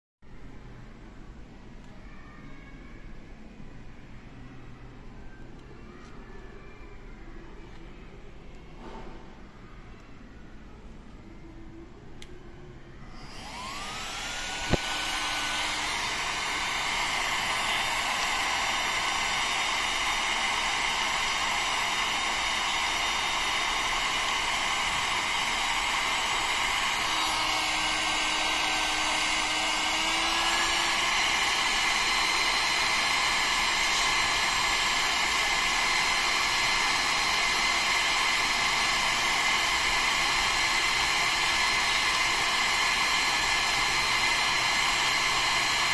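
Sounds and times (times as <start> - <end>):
heat gun fan whining: 13.1 - 45.9.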